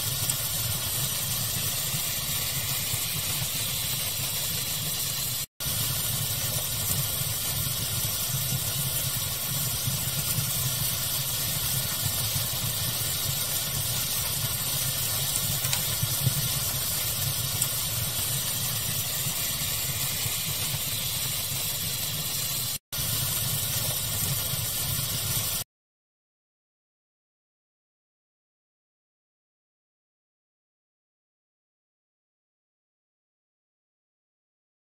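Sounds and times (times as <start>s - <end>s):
faint fire crackles: 0.0s - 25.6s
fire ambience hiss: 0.0s - 25.6s.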